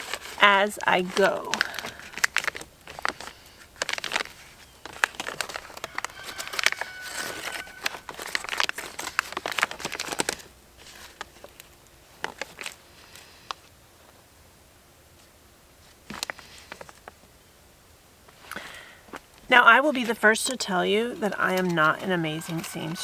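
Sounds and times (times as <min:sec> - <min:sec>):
tarp fabric crinkling: 0:00.0 - 0:13.4.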